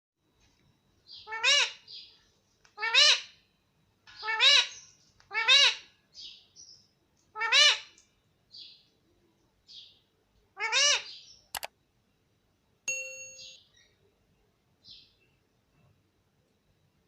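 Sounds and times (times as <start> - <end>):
parrot calling: 1.2 - 1.9, 2.8 - 3.4, 4.2 - 5.9, 7.3 - 8.0, 10.6 - 11.3
high chirps: 12.9 - 13.8.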